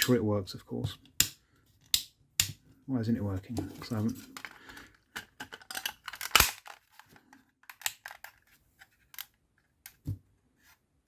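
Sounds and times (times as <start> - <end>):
plastic parts clicking and rattling: 3.7 - 10.0.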